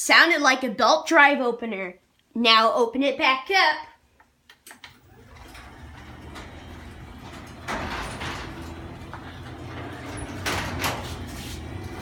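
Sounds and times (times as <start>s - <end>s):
garage door opener motor hum: 4.6s - 12.0s
garage door rumbling up: 4.9s - 12.0s.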